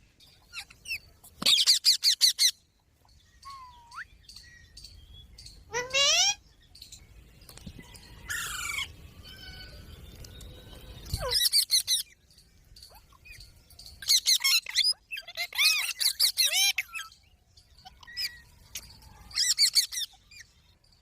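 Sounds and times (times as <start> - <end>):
parrot chirping and squawking: 0.4 - 2.6, 5.7 - 6.4, 11.0 - 12.2, 14.0 - 17.2, 17.8 - 20.5.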